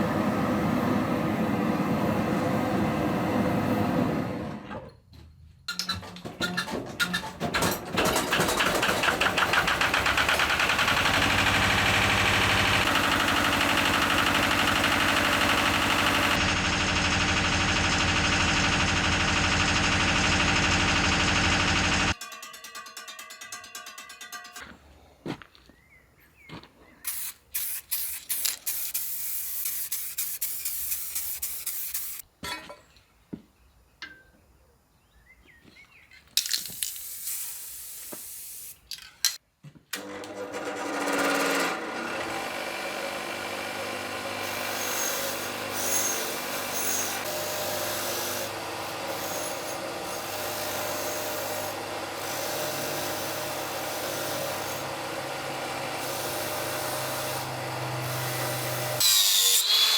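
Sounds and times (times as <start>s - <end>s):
metal clicks and scraping: 5.7s - 8.9s
power tool rubbing metal: 44.2s - 59.9s.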